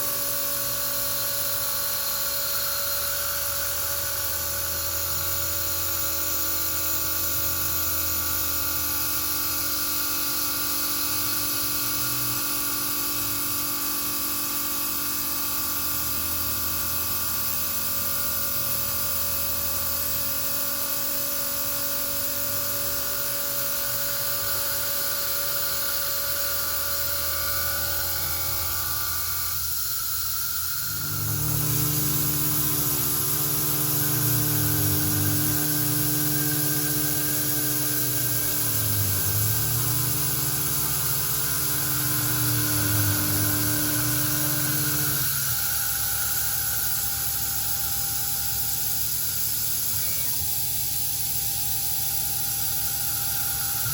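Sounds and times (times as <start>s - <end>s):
hiss of cutting and coolant: 0.0s - 53.9s
milling machine spindle whine: 0.0s - 53.9s
lower machine hum: 26.1s - 47.6s.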